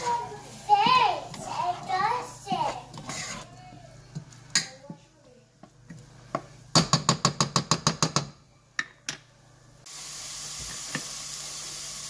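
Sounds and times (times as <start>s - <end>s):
onions frying in oil: 0.0s - 3.3s, 9.8s - 12.0s.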